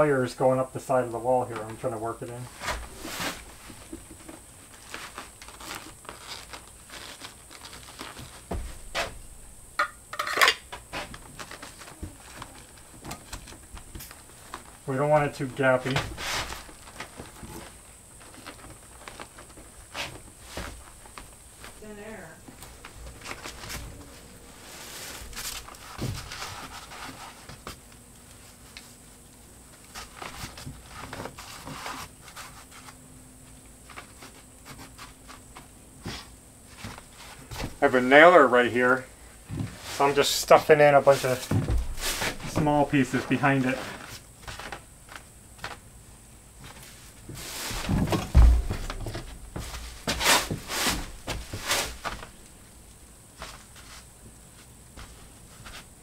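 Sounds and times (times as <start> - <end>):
insulation rustling: 0.0 - 56.0
low thump: 41.5 - 42.6, 47.8 - 50.1.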